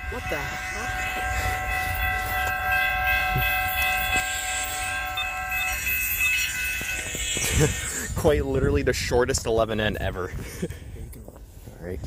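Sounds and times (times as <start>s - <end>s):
locomotive air horn chord: 0.0s - 7.9s
low rumble of passing train: 0.0s - 10.1s.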